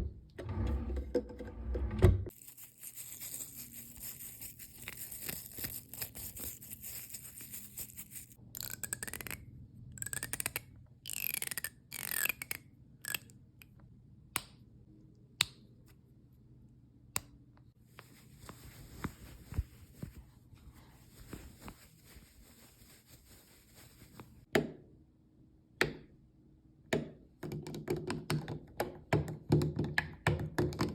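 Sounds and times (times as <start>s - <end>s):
scratchy rubbing: 2.3s - 8.4s, 21.0s - 24.4s
soft scratching: 2.3s - 8.4s, 17.9s - 24.5s.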